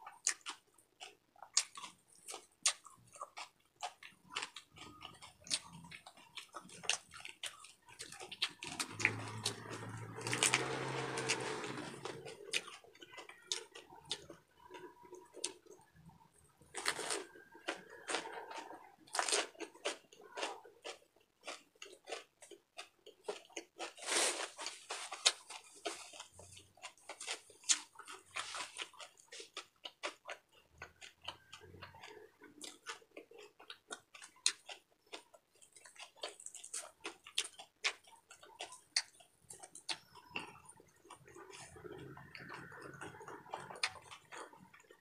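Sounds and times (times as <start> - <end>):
person crunching crispy food: 0.0 - 45.0
wet mouth sounds: 36.4 - 45.0.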